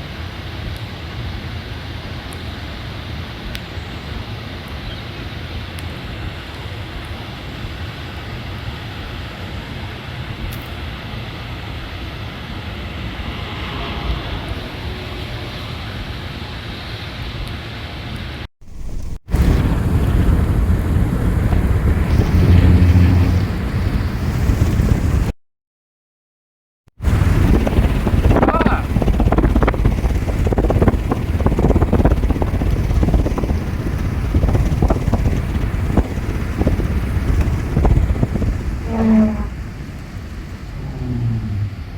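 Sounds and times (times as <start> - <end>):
wind buffeting microphone: 11.8 - 16.8, 18.7 - 25.3, 27.0 - 41.9.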